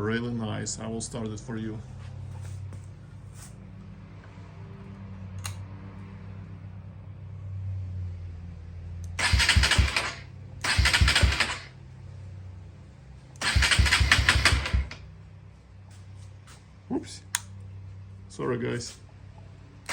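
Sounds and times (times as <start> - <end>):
motorcycle engine cranking: 9.1 - 11.7, 13.4 - 15.1.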